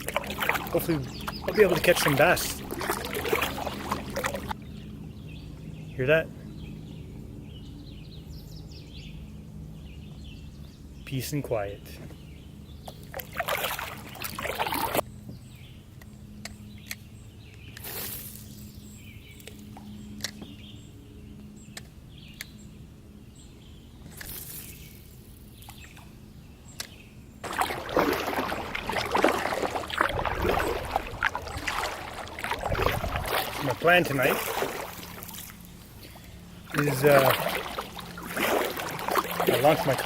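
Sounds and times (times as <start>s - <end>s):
kayak paddle splashing water: 0.0s - 4.6s, 13.1s - 15.0s, 27.4s - 40.0s.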